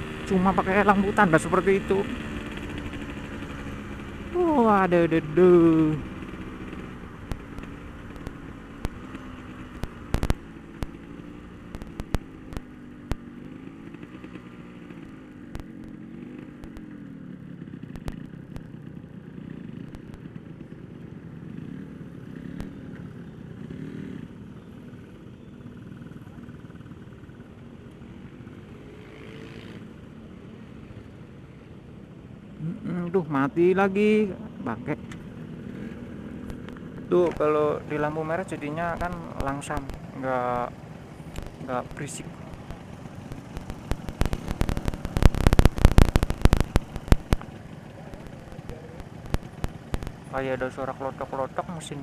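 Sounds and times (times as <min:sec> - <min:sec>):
two-stroke motorcycle engine: 0:00.0 - 0:52.0
sharp clicks and knocks: 0:41.3 - 0:47.6.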